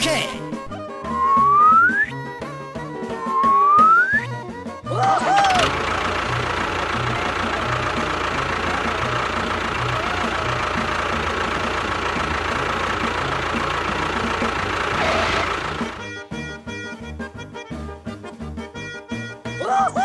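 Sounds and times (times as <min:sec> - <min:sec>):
motor running with high whine: 0:05.3 - 0:16.0.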